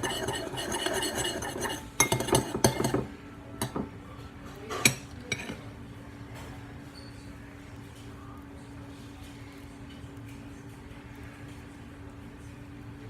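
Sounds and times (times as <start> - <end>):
utensil scraping bowl: 0.0 - 3.1
utensil clinking against bowl: 0.0 - 3.9.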